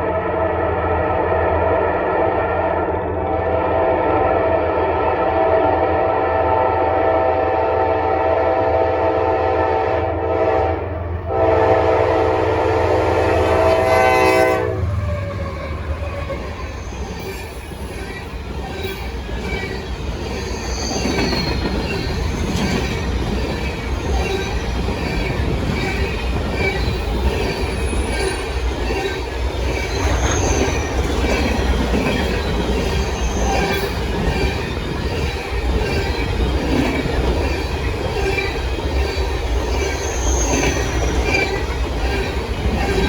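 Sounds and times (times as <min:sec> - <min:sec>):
train rumbling: 0:00.0 - 0:43.0
locomotive air horn blasts: 0:03.3 - 0:15.1.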